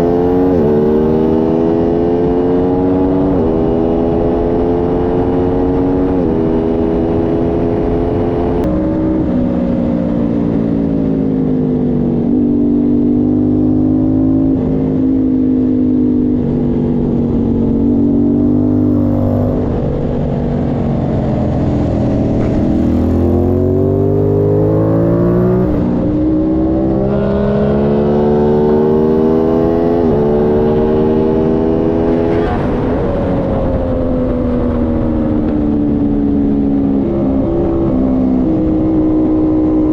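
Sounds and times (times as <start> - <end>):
motorcycle engine revving: 0.0 - 39.9
wind rushing: 17.4 - 37.8.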